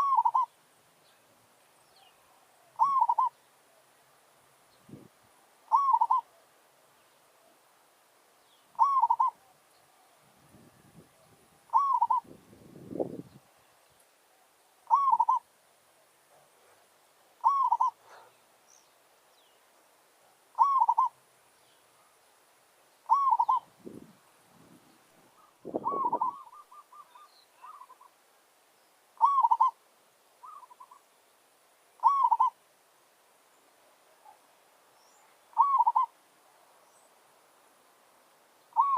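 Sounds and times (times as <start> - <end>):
dove cooing: 0.0 - 0.5, 2.4 - 3.4, 5.7 - 6.4, 8.8 - 10.2, 11.2 - 12.4, 14.8 - 15.5, 17.4 - 18.3, 20.6 - 21.2, 23.1 - 24.1, 25.3 - 28.1, 29.2 - 29.8, 30.4 - 31.0, 32.0 - 32.6, 35.5 - 36.2.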